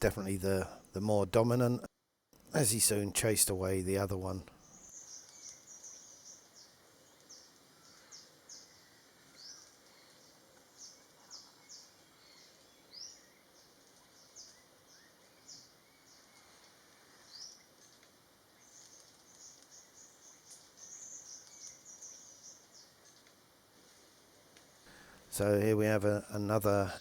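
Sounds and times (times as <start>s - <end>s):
quiet forest background: 0.0s - 27.0s
faint bird chirps: 4.4s - 23.4s.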